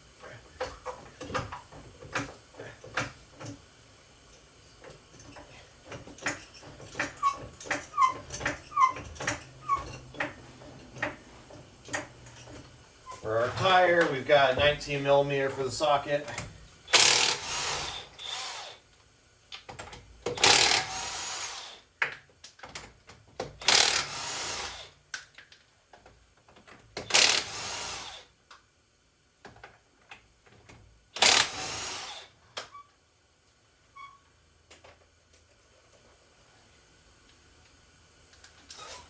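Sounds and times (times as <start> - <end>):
lug nuts clicking and clattering: 0.6 - 3.6, 4.3 - 12.8
impact wrench bursts: 16.0 - 18.9, 20.2 - 21.9, 23.6 - 25.0, 27.0 - 28.4, 31.2 - 32.8.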